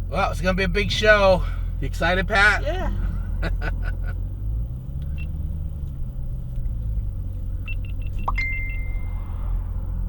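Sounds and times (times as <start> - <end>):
car engine rumbling: 0.0 - 10.0
short electronic beeps: 7.6 - 9.3
held beep tone: 7.7 - 9.2.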